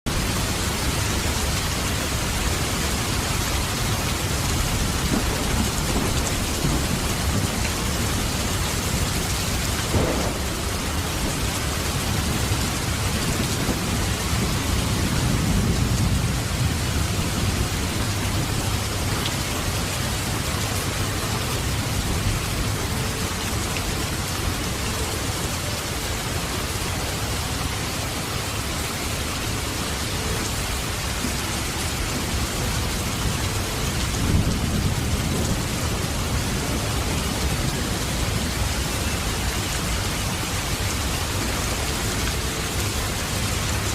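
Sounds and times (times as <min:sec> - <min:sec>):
heavy rain: 0:00.0 - 0:43.9
thunder rolling: 0:00.1 - 0:23.6, 0:33.8 - 0:39.3.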